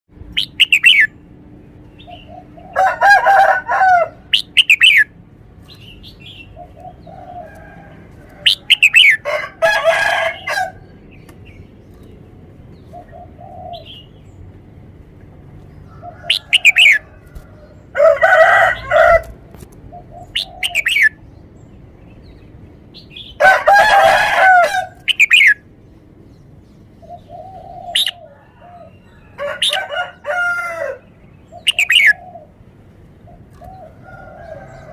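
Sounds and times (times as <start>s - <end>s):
lower bird calls: 0.3s - 1.2s, 4.0s - 9.3s, 15.8s - 18.0s, 18.7s - 21.7s, 24.8s - 25.7s, 26.8s - 29.9s, 30.9s - 32.6s
bird singing whistled phrases: 0.4s - 1.1s.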